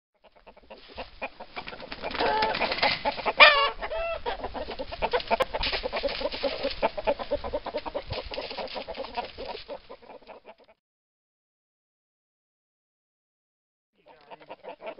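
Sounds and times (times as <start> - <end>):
chickens clucking: 0.2 - 10.8, 14.0 - 14.9.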